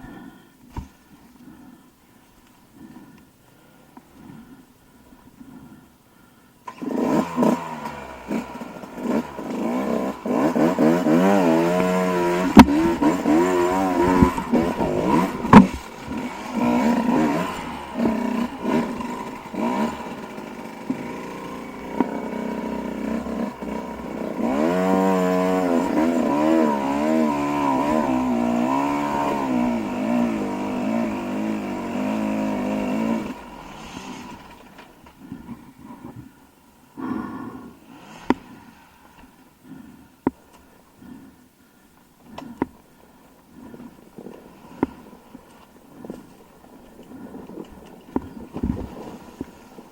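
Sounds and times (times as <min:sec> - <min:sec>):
dirt bike engine revving: 0:06.7 - 0:35.6.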